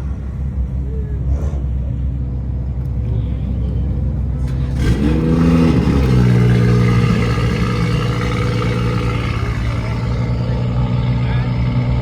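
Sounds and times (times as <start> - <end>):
car engine running: 3.7 - 12.0.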